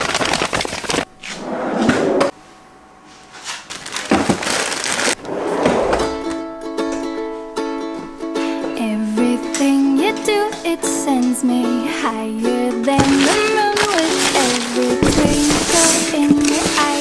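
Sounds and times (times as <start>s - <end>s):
rustling handling noise: 3.1s - 5.2s, 12.7s - 17.0s
ukulele music: 6.0s - 17.0s.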